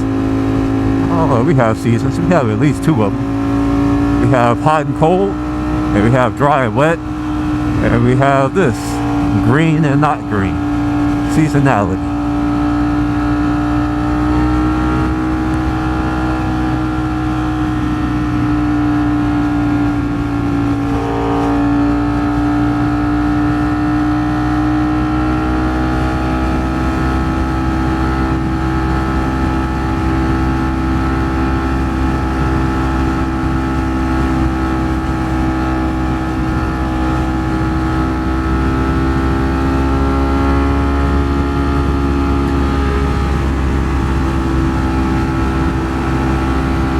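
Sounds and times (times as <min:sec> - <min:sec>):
motorcycle engine cruising: 0:12.0 - 0:46.9
low wind rumble: 0:15.1 - 0:24.8.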